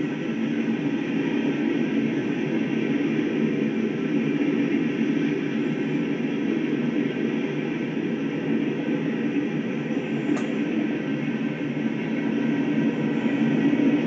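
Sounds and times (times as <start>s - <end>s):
train wheels rumbling on rail: 0.0s - 14.0s
brief click: 10.3s - 10.6s.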